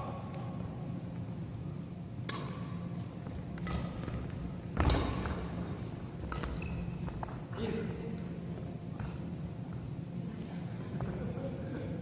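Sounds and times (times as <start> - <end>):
racket striking shuttlecock: 2.2 - 2.8, 3.5 - 5.4, 6.2 - 7.4
shoe squeaks: 6.4 - 7.8.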